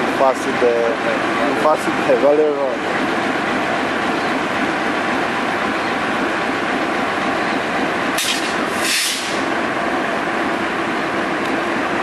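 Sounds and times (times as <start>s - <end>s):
diesel locomotive passing: 0.0s - 12.0s.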